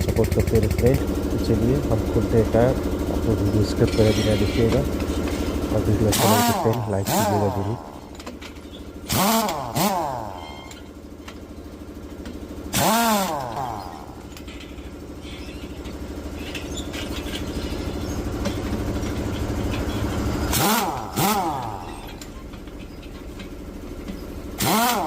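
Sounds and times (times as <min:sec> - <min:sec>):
engine hum: 0:00.0 - 0:25.0
impact wrench spinning: 0:03.8 - 0:25.0.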